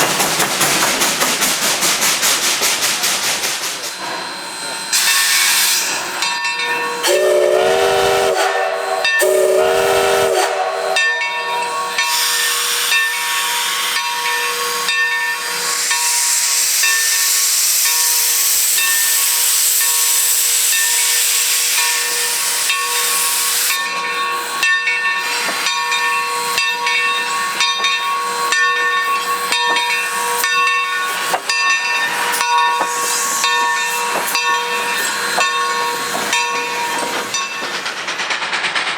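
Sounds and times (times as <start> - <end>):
hiss of steam: 0.0 - 38.9
steam locomotive exhaust chuffs: 0.0 - 38.9
steam locomotive whistle blasts: 6.8 - 23.8.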